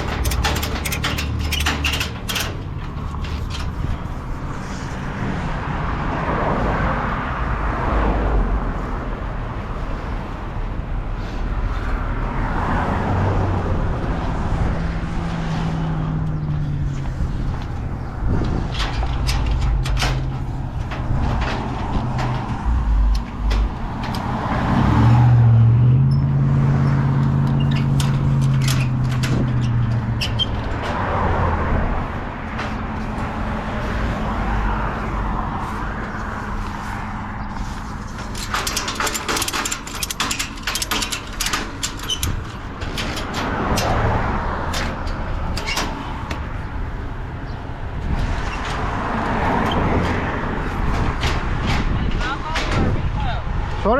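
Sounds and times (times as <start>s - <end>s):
sharp clicks and rattles: 0.0s - 5.0s, 16.2s - 25.4s, 26.1s - 34.5s, 37.4s - 53.1s.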